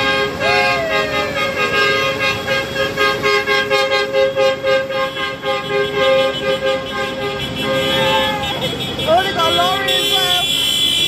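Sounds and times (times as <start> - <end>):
two-tone vehicle horn: 0.0 - 11.0.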